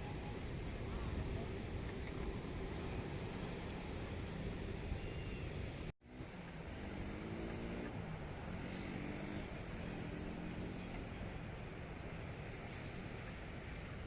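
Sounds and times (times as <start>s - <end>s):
distant motorcycles accelerating: 6.0s - 13.2s.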